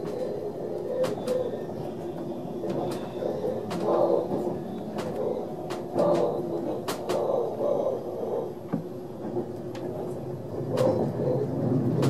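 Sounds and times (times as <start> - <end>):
train coach rumbling on track: 0.0 - 12.0.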